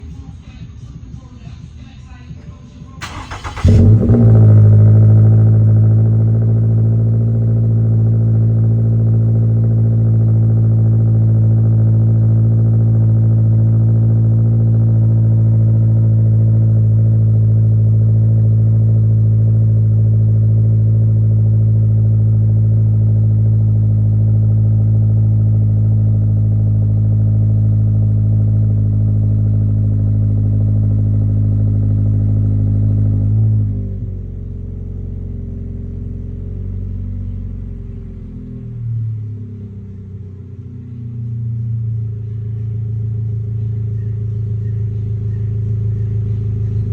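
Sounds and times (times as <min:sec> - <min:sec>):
car engine idling: 0:03.0 - 0:46.9.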